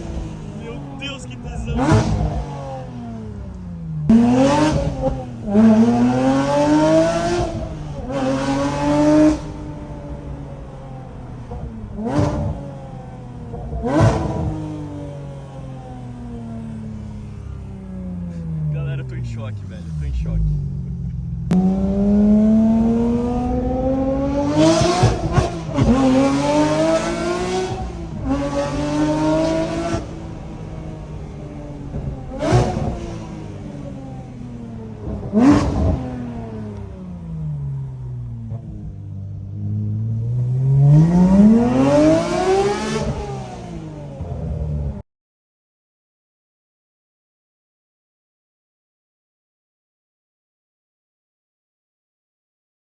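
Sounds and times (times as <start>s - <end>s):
low engine rumble: 0.0s - 4.2s, 16.0s - 25.8s
car engine revving: 0.0s - 45.0s.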